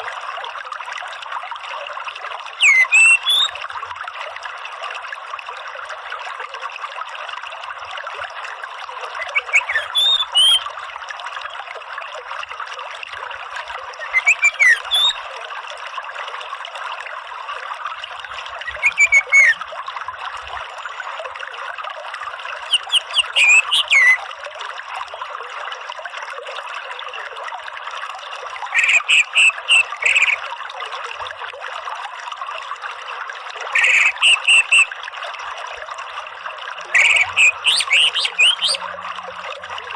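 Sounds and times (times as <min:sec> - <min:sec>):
running water rushing: 0:00.0 - 0:39.9
thrush stuttering calls: 0:02.6 - 0:03.5, 0:09.2 - 0:10.6, 0:14.0 - 0:15.2, 0:18.6 - 0:19.6, 0:22.7 - 0:24.2, 0:28.7 - 0:30.4, 0:33.7 - 0:34.9, 0:36.9 - 0:38.9.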